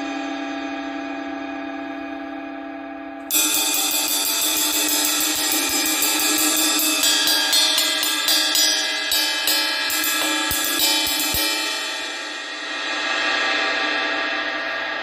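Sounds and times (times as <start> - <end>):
ride cymbal struck: 3.3 - 15.0.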